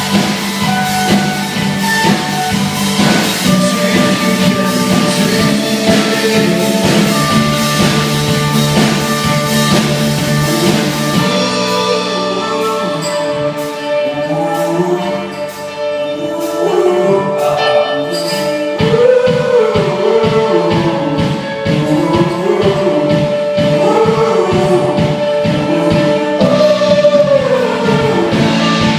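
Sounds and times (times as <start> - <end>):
rock band playing live: 0.0 - 28.9.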